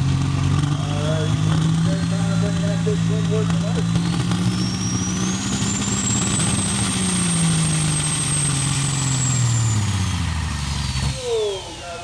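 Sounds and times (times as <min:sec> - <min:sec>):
diesel truck engine lugging: 0:00.0 - 0:12.0.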